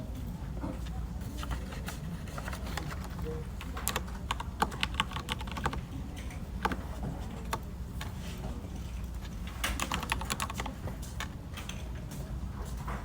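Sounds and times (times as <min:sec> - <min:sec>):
low office hum: 0:00.0 - 0:13.0
keyboard typing: 0:02.3 - 0:08.3, 0:09.2 - 0:11.3.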